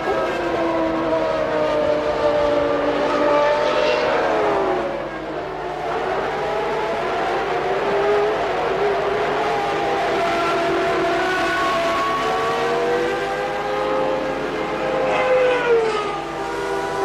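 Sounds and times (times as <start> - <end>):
racing car engines at high revs: 0.0 - 17.0.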